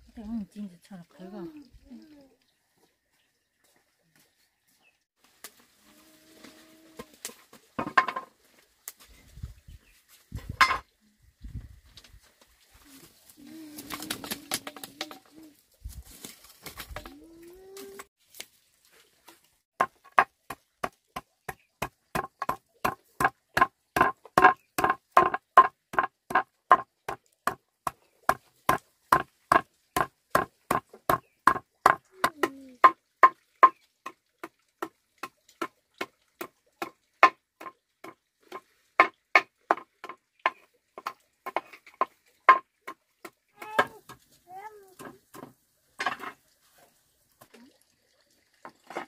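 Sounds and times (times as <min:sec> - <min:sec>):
blade chopping wood: 0:19.8 - 0:27.6.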